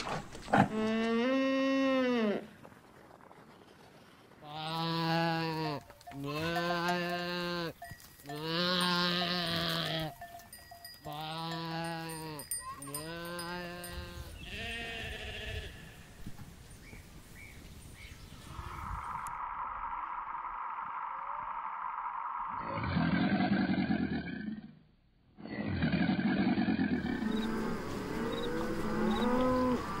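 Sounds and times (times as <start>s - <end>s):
goats bleating: 4.4s - 10.2s, 11.0s - 16.1s.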